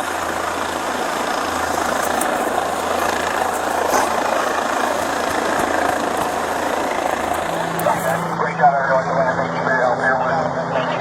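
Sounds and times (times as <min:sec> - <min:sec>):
low hum: 0:00.0 - 0:08.4
helicopter rotor and turbine: 0:00.0 - 0:11.0.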